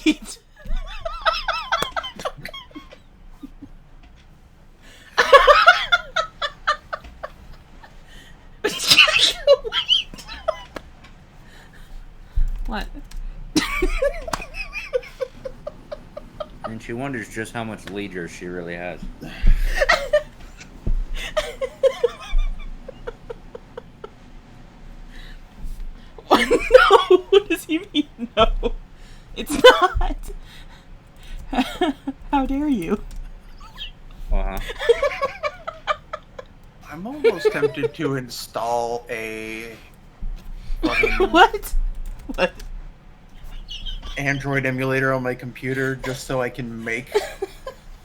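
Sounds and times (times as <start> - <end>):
woman laughing: 0.0 - 3.8, 5.2 - 10.8, 12.7 - 17.0, 19.0 - 24.2, 26.2 - 30.7, 31.3 - 38.1, 40.8 - 42.7, 43.4 - 44.6, 46.8 - 48.0.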